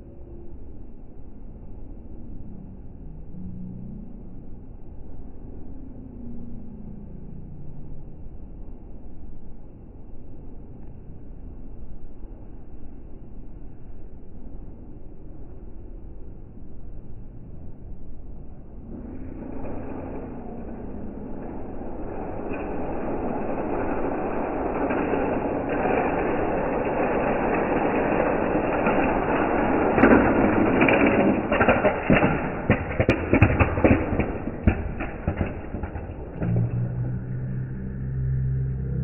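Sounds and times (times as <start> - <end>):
toy cars rolling rumble: 18.7 - 39.0.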